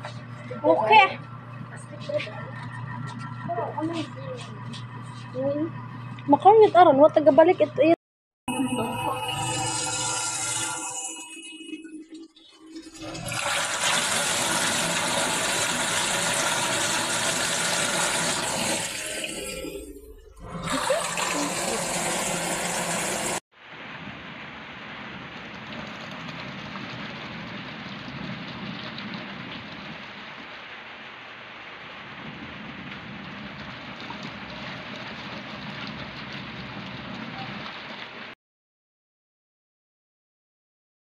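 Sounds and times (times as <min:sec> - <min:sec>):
water rushing in washing machine: 0:08.8 - 0:11.4, 0:12.3 - 0:23.4, 0:33.1 - 0:38.4.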